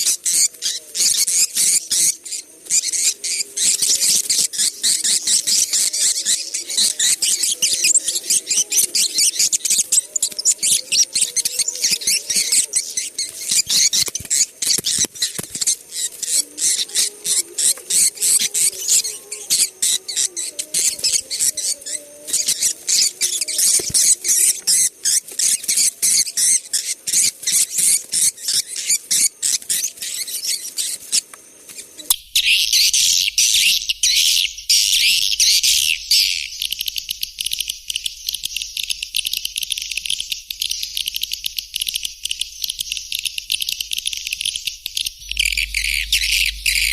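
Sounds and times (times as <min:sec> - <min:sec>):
buzzy chirping: 0:45.2 - 0:46.9
low hum: 0:45.2 - 0:46.9
swiftlets twittering: 0:45.2 - 0:46.9.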